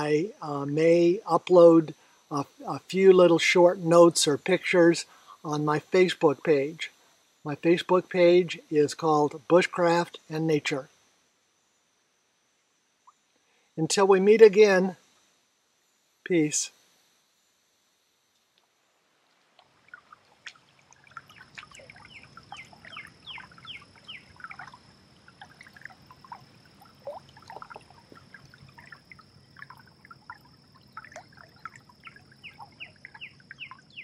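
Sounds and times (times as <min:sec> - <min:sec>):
low hiss: 0:00.0 - 0:34.0
birds singing and chirping: 0:21.1 - 0:24.8, 0:30.9 - 0:34.0.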